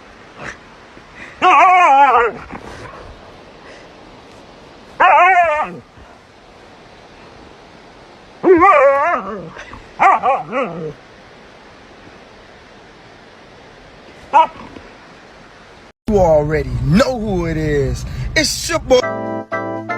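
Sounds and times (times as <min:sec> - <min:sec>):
dog whining: 0:05.0 - 0:05.8, 0:08.4 - 0:11.0.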